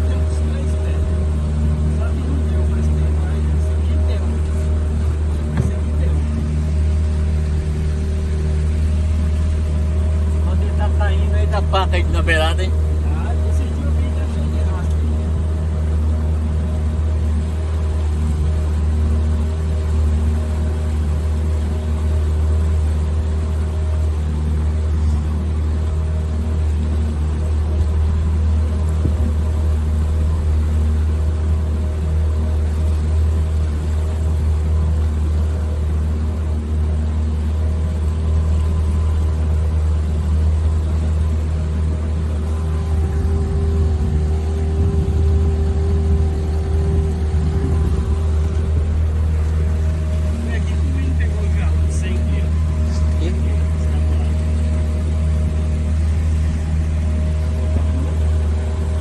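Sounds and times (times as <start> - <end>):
boat motor droning: 0.0 - 59.0
water noise: 0.0 - 59.0
wind noise: 42.9 - 49.3.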